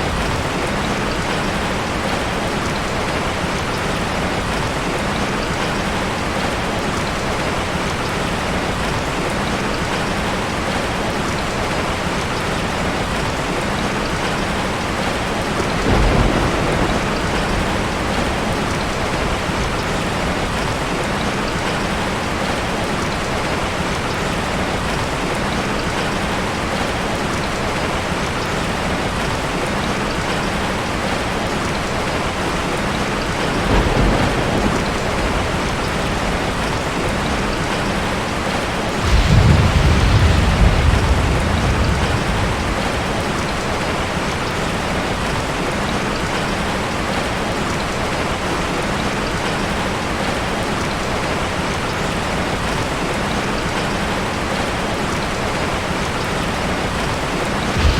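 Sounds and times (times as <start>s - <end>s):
rain falling on forest: 0.0s - 57.9s
low rumble of thunder: 14.3s - 21.8s, 33.3s - 45.6s, 57.6s - 57.9s.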